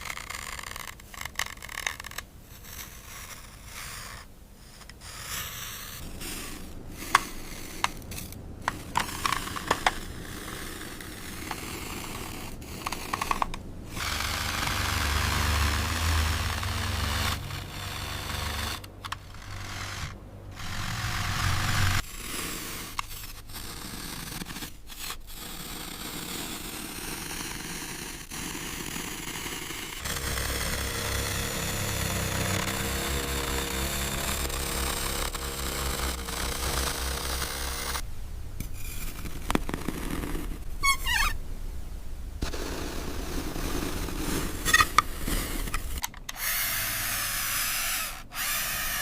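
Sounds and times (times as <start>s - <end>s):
heavy machinery engine rumble: 12.6s - 22.0s.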